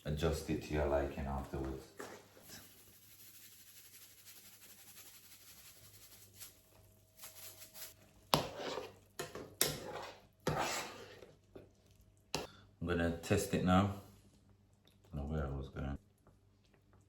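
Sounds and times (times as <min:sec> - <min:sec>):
spoon scraping a cooking pot: 0:07.2 - 0:11.8.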